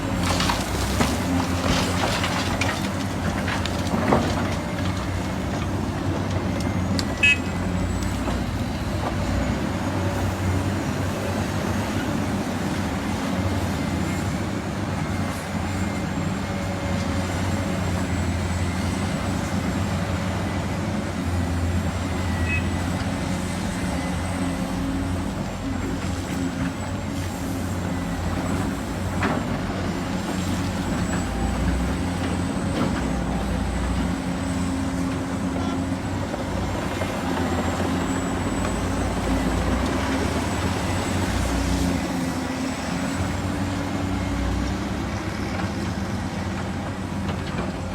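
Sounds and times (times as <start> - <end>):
heavy machine engine running: 0.0 - 47.9
short high beep: 22.3 - 22.7.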